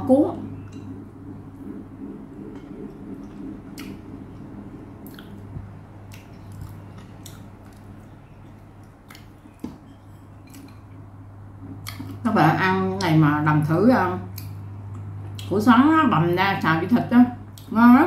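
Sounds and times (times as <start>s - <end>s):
steady low hum: 0.0s - 18.0s
person chewing bread: 5.0s - 11.0s.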